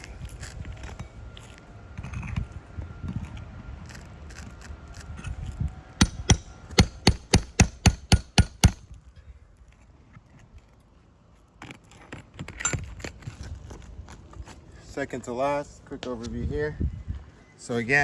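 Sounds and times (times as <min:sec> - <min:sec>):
rapid hammer strikes: 0:06.0 - 0:08.8.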